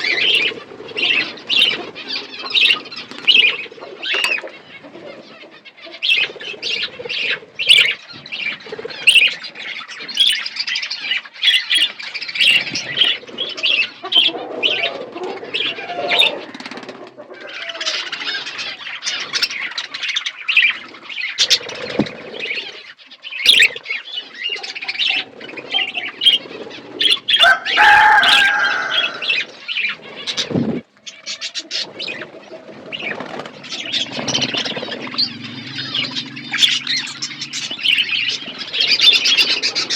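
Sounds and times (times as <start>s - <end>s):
budgerigars chattering: 0.0s - 39.9s
wing flutters: 11.8s - 17.2s, 18.0s - 39.9s.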